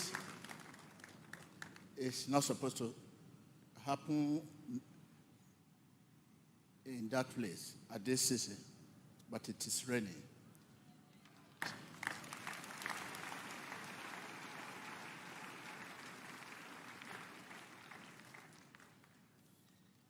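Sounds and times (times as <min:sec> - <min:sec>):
audience applauding: 0:00.0 - 0:01.9, 0:11.4 - 0:19.3.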